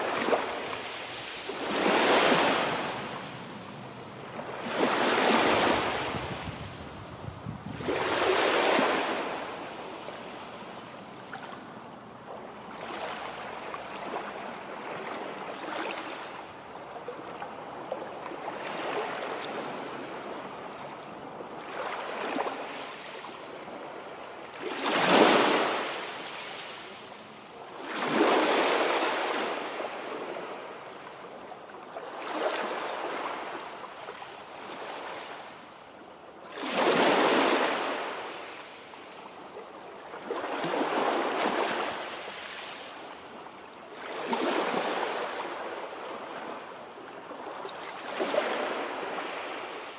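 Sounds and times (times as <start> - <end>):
sea waves breaking on shore: 0.0 - 10.6, 21.6 - 35.7, 36.4 - 49.9.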